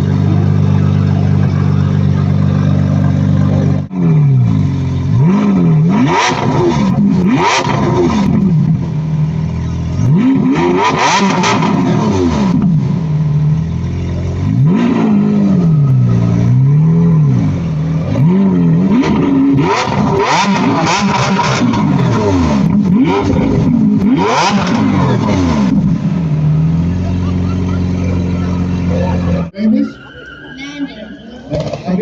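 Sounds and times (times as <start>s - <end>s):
car engine revving: 0.0s - 30.4s.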